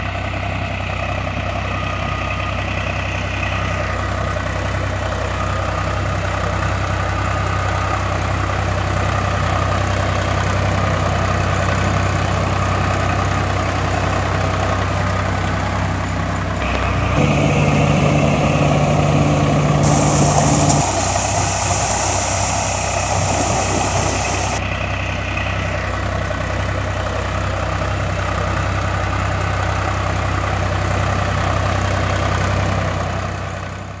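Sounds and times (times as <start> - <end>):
heavy vehicle engine running: 0.0 - 34.0
hiss: 19.6 - 24.7.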